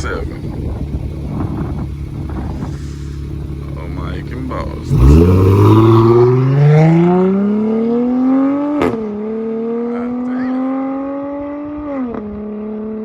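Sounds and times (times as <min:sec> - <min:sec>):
car engine revving at full throttle: 0:00.0 - 0:13.0.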